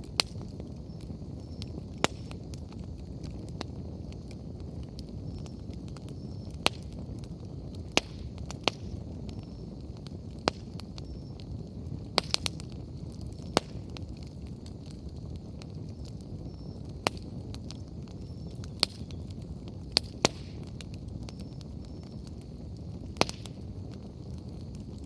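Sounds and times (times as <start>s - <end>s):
campfire rushing: 0.0s - 25.0s
fire crackles and pops: 0.0s - 25.0s.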